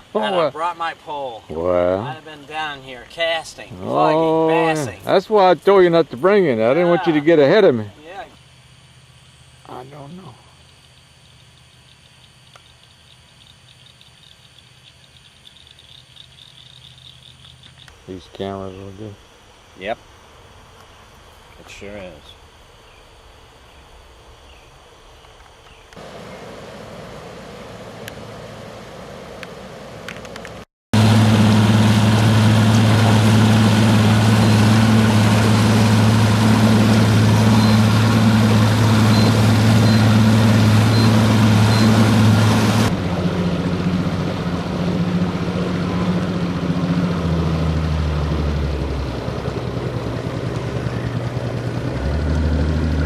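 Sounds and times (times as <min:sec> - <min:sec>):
boat motor running: 0:26.0 - 0:53.0.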